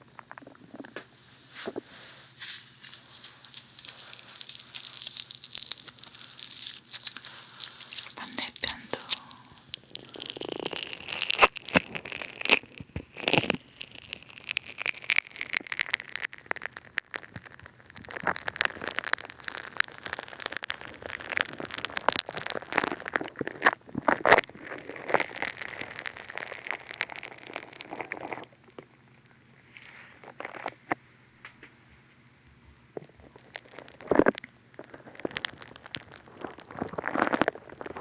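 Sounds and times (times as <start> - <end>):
bead clay crackling: 2.4 - 28.5.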